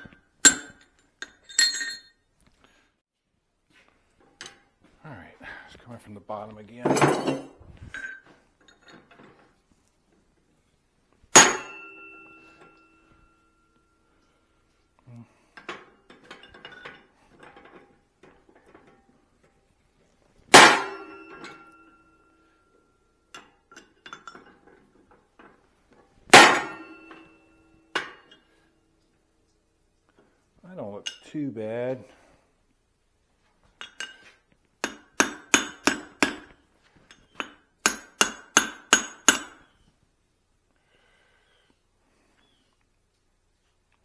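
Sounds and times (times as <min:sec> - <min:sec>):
tools clinking and rattling: 0:00.0 - 0:02.2, 0:04.2 - 0:04.9, 0:06.8 - 0:09.7, 0:11.3 - 0:14.4, 0:15.6 - 0:28.6, 0:31.0 - 0:31.4, 0:33.6 - 0:39.8
hammer striking steel on anvil: 0:00.4 - 0:00.8, 0:11.4 - 0:13.1, 0:20.5 - 0:22.3, 0:26.3 - 0:28.4, 0:34.8 - 0:36.5, 0:37.4 - 0:39.6
steel ringing: 0:11.4 - 0:13.8, 0:20.5 - 0:22.8, 0:26.3 - 0:28.4.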